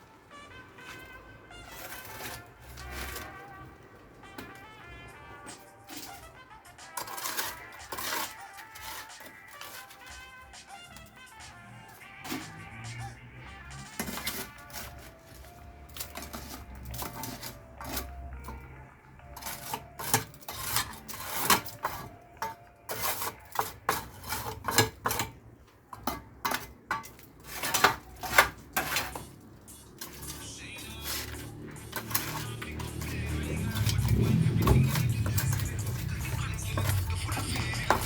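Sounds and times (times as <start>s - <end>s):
hand tools clinking on metal: 13.7s - 18.7s, 19.3s - 38.0s.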